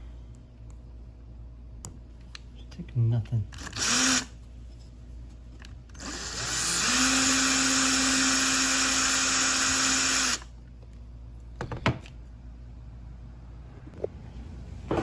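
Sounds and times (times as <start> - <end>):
electric drill spinning: 3.6 - 4.4, 5.9 - 10.5.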